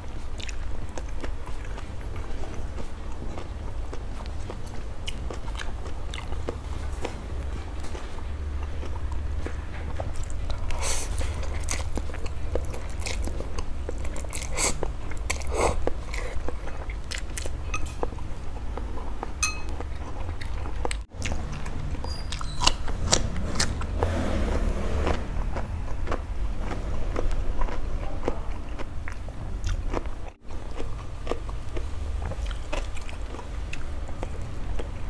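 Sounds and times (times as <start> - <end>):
person chewing noodles: 0.0 - 35.0
low hum: 16.6 - 20.4.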